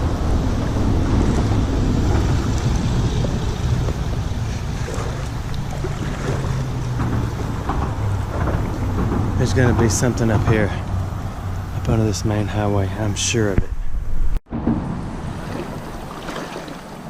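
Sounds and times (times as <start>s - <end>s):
steady low rumble: 0.0s - 16.1s
water sloshing around wading legs: 0.6s - 11.7s, 15.2s - 17.0s.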